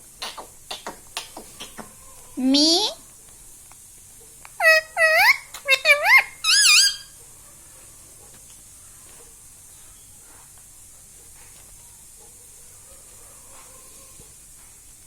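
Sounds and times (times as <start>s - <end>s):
faint steady hiss: 0.0s - 15.0s
parrot call: 4.6s - 7.2s.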